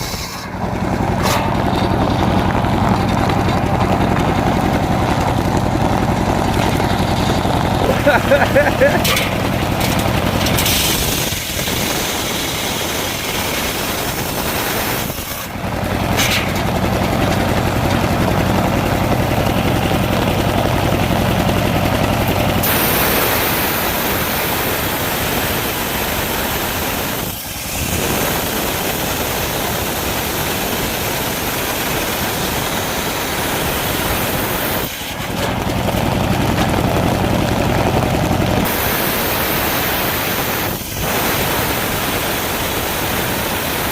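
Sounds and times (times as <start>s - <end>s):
engine-driven circular saw running: 0.0s - 43.9s
heavy rain hissing: 6.2s - 15.9s, 22.6s - 35.0s, 38.5s - 43.9s.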